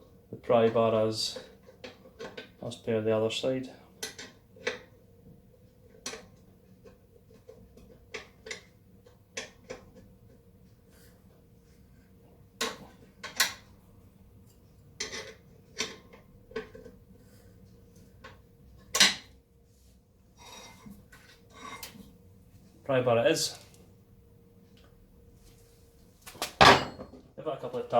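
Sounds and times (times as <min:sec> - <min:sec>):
metal tools clanking on metal: 0:26.6 - 0:27.2.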